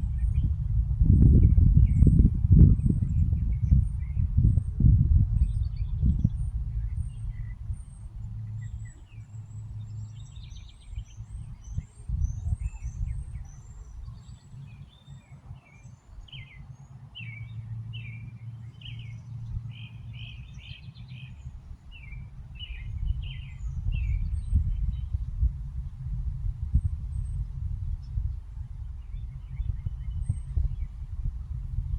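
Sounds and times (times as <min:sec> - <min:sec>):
low rumble: 0:00.0 - 0:13.4, 0:21.6 - 0:31.9
birds chirping: 0:05.5 - 0:25.5.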